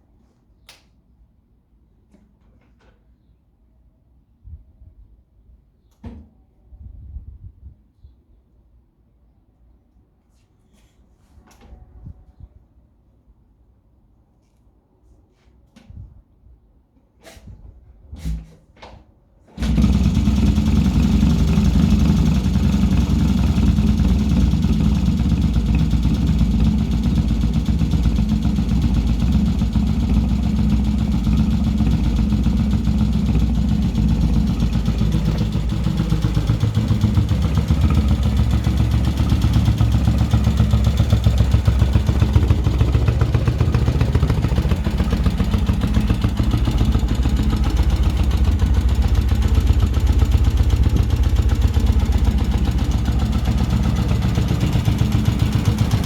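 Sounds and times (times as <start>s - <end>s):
engine starting and running: 19.5s - 56.0s.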